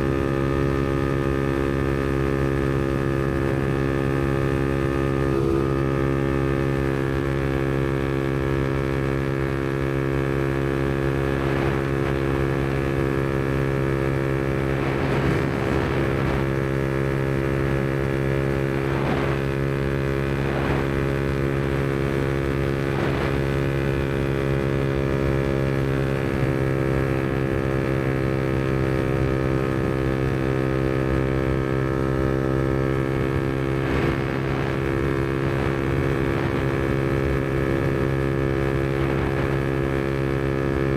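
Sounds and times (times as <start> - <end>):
motorcycle engine running steadily: 0.0 - 40.9.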